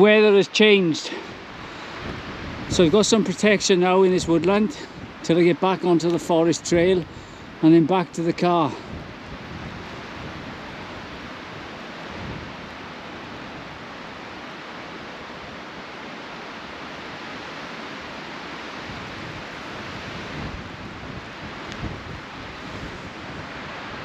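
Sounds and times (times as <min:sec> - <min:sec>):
rushing wind in snowstorm: 0:00.0 - 0:24.0.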